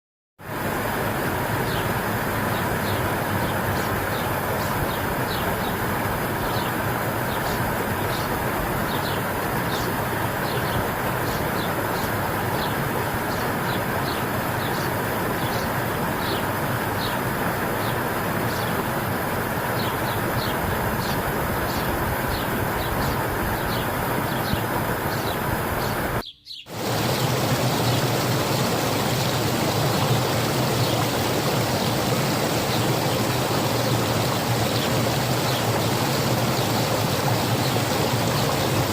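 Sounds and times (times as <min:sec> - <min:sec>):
spring water running: 0:00.4 - 0:38.9
bird chirping: 0:02.5 - 0:05.8, 0:19.7 - 0:29.4.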